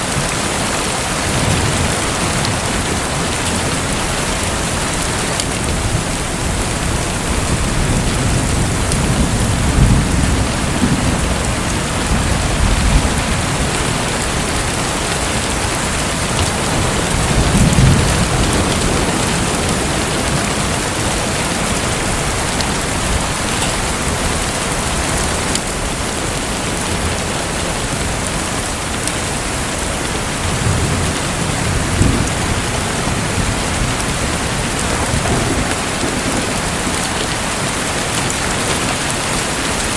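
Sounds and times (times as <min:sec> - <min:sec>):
falling splashing water: 0:00.0 - 0:39.9.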